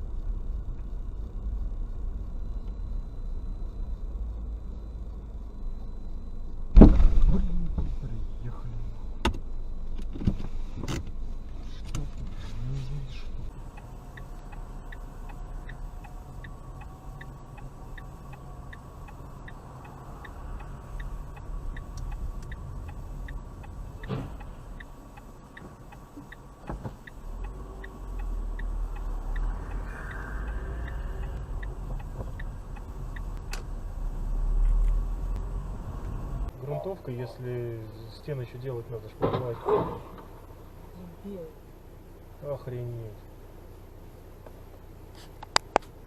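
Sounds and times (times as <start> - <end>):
car engine: 0.0 - 46.0
road rumble: 0.0 - 46.0
regular ticking: 13.0 - 36.6.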